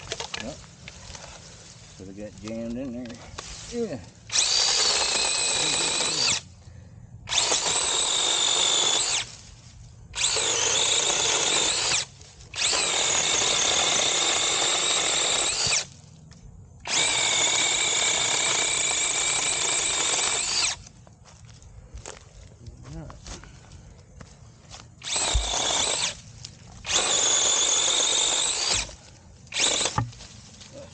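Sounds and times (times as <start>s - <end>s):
mini chainsaw motor whining: 4.3s - 6.6s, 7.2s - 9.4s, 10.1s - 15.9s, 16.8s - 20.8s, 25.0s - 26.2s, 26.8s - 30.2s.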